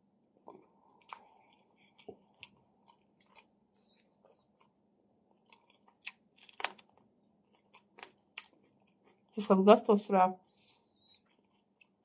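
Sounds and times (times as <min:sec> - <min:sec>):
close chewing: 0:01.0 - 0:04.8, 0:10.5 - 0:12.0.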